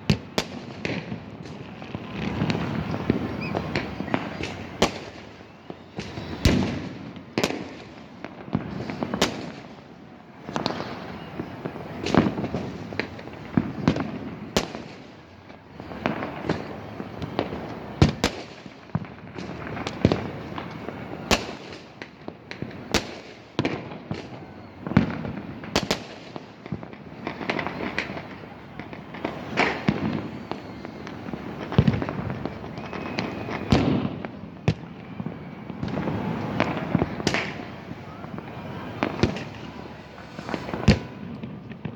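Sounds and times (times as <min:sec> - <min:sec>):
distant explosions rumbling: 0:00.0 - 0:09.6, 0:26.7 - 0:41.9
firecracker bangs: 0:00.0 - 0:09.8, 0:22.6 - 0:41.9.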